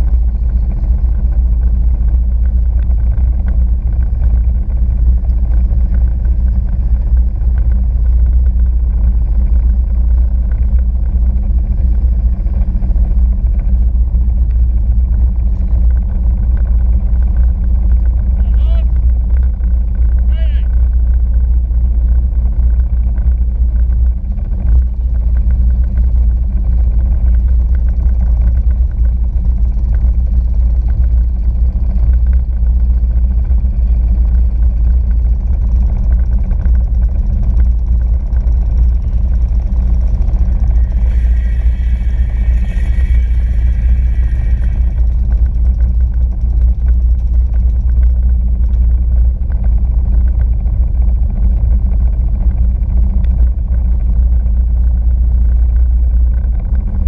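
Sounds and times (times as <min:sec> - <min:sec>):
high whine: 0:00.0 - 0:57.0
jet ski engine rumbling: 0:00.0 - 0:57.0.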